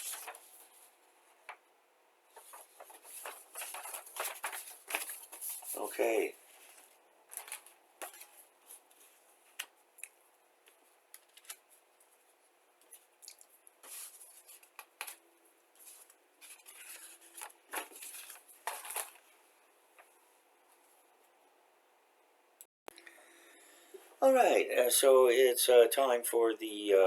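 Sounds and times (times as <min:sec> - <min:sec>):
paper rustling: 0:00.0 - 0:01.6, 0:02.3 - 0:09.8, 0:10.6 - 0:15.2, 0:15.8 - 0:19.4.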